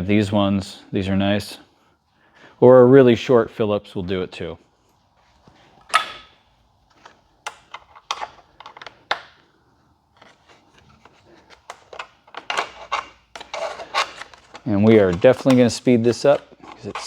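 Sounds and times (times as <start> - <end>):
screwdriver clicks and scrapes: 6.9 - 9.3, 10.2 - 17.0.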